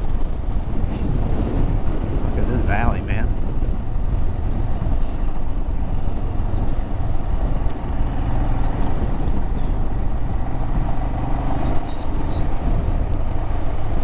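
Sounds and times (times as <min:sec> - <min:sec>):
road noise: 0:00.0 - 0:14.0
motorcycle engine running: 0:03.1 - 0:14.0.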